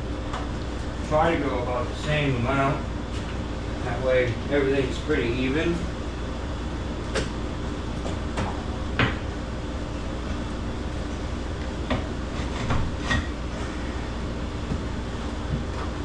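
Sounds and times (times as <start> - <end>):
air conditioning hum: 0.0 - 16.0.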